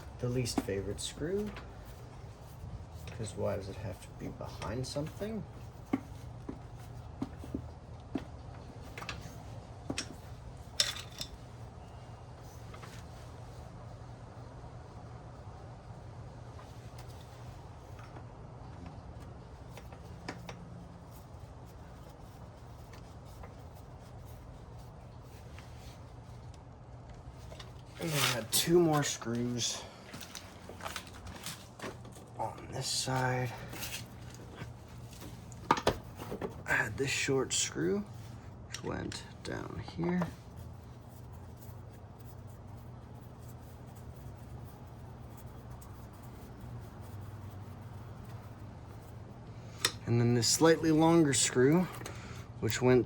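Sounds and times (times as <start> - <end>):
steady low hum: 0.0 - 53.0
hands handling small parts: 9.9 - 11.4.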